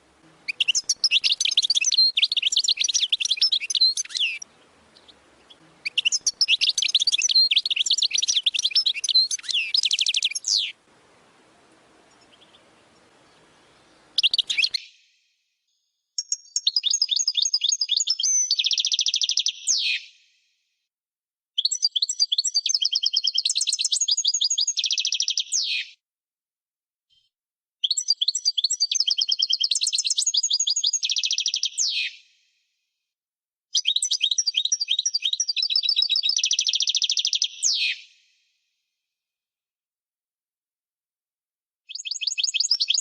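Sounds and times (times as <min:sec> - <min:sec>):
goldfinch twittering song: 0:00.4 - 0:10.8, 0:12.1 - 0:14.9, 0:41.9 - 0:43.0.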